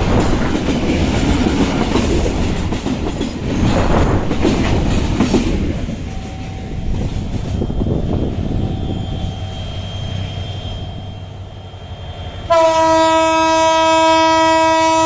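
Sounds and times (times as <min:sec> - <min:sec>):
wheels clacking over rail joints: 0:00.0 - 0:07.6
train wagons rumbling past: 0:00.0 - 0:15.0
thin steady squeal: 0:07.5 - 0:12.4.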